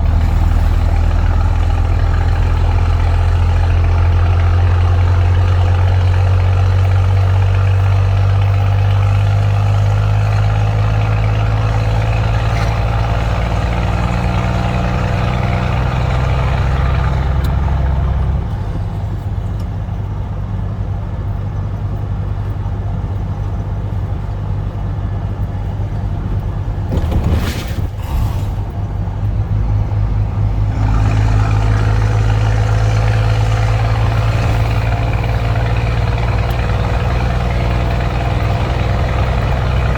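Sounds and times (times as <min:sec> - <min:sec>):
truck diesel engine drone: 0:00.0 - 0:39.9
brief hisses: 0:27.0 - 0:28.8.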